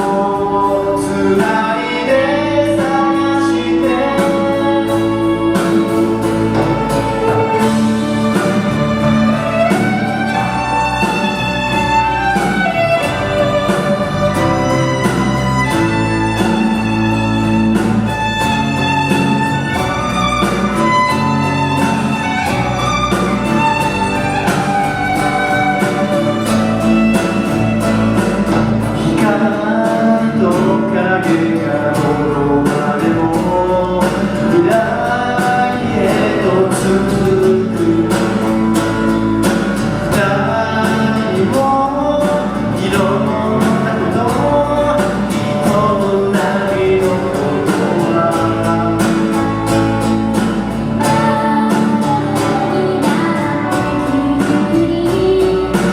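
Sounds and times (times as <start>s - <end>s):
rock band playing: 0.0s - 55.9s
violin melody: 1.8s - 29.7s.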